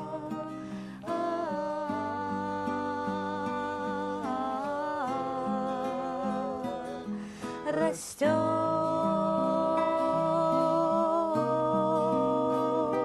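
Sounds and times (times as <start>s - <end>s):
acoustic guitar picking: 0.0s - 13.0s
person singing: 0.0s - 13.0s
audible breath: 0.5s - 1.0s, 7.1s - 7.7s.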